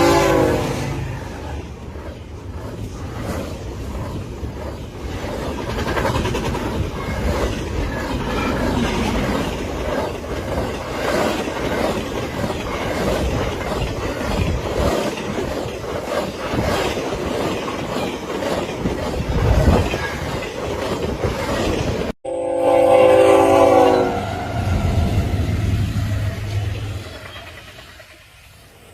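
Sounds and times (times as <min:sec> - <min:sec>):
train wheels clattering: 0:00.0 - 0:22.2
locomotive horn chord: 0:22.2 - 0:24.8.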